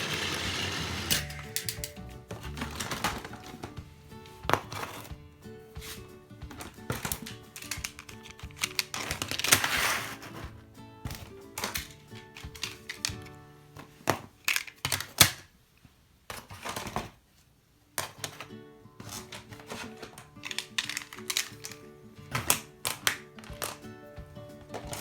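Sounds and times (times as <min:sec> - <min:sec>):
plastic track pieces clicking: 0:00.0 - 0:03.4, 0:06.9 - 0:10.4, 0:11.5 - 0:13.4, 0:14.3 - 0:15.5, 0:19.1 - 0:23.9
light background music: 0:00.0 - 0:15.3, 0:17.9 - 0:25.0.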